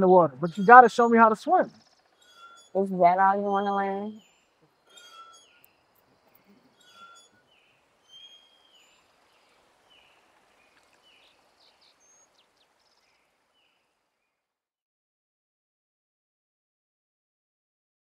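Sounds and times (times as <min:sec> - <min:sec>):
bird chirping: 0:00.0 - 0:14.4
faint outdoor ambience: 0:00.0 - 0:14.5.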